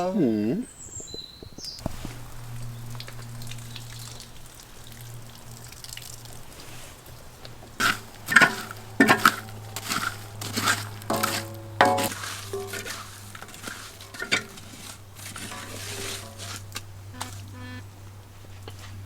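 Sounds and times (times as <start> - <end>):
faint low hum: 15.1 - 19.0.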